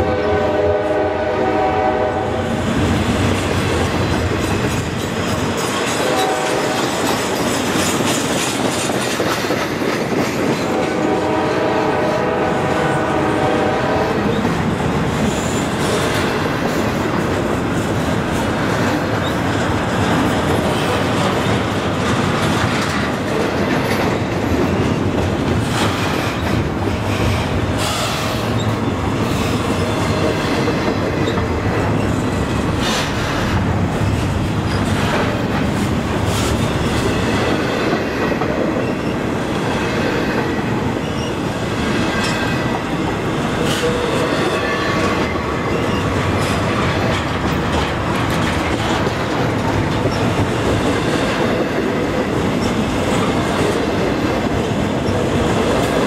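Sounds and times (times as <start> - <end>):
train horn: 0.0 - 2.6, 6.0 - 7.2, 10.7 - 14.4
freight train wheels clattering: 0.0 - 56.0.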